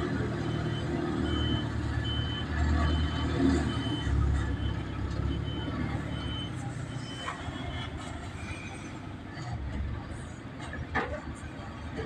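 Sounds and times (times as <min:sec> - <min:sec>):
heavy vehicle engine under load: 0:00.0 - 0:12.0
reversing alarm beeps: 0:00.2 - 0:07.8.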